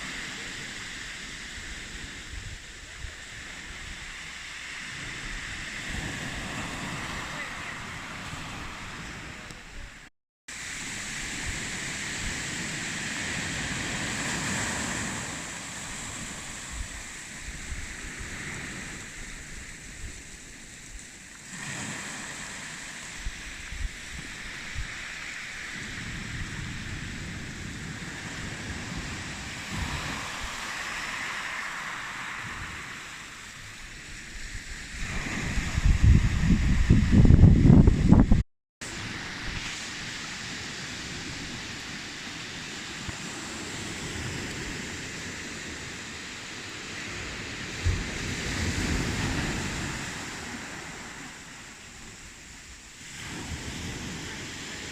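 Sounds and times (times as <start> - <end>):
surf washing on shingle beach: 0.0 - 38.1, 38.8 - 54.9
wind buffeting microphone: 32.2 - 45.9, 46.7 - 51.3.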